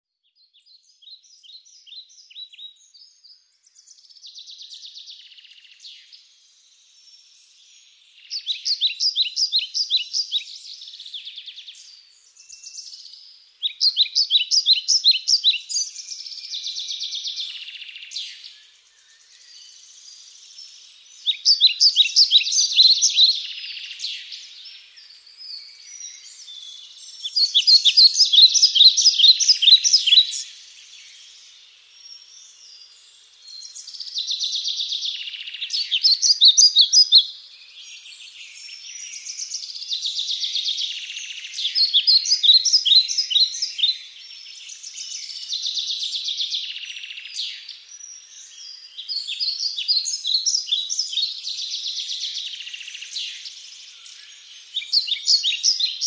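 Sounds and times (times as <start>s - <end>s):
birds chirping: 0.8s - 56.0s
high-pitched bird chatter: 21.3s - 24.0s, 27.3s - 30.4s.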